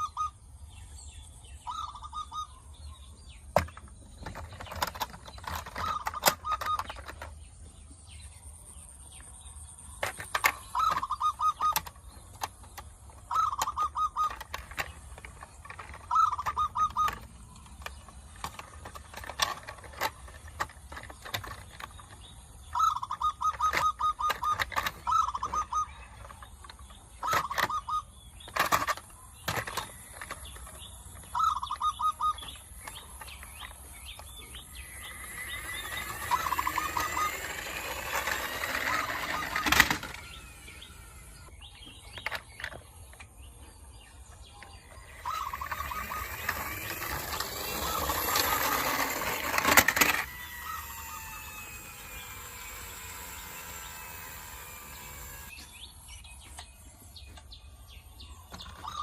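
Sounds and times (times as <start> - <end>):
bird calling in pulsed bursts: 0.0 - 0.5, 1.3 - 3.2, 10.6 - 17.9, 22.6 - 28.7, 29.9 - 41.8, 44.9 - 49.0, 50.2 - 56.0.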